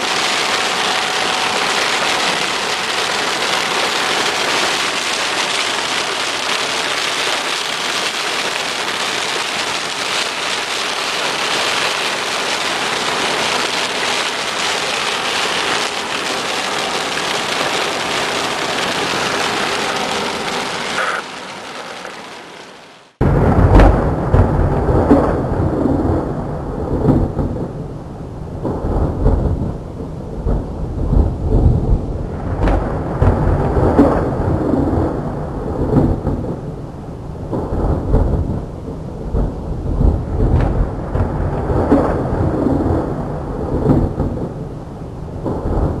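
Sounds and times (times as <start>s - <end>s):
rain: 0.0s - 46.0s
loud low rumbling: 23.2s - 46.0s.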